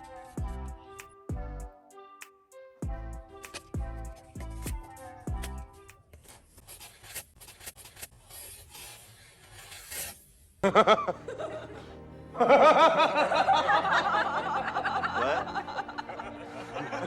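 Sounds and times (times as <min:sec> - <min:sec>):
quiet scratching and clicks: 0:05.4 - 0:10.4
person laughing: 0:10.6 - 0:17.0.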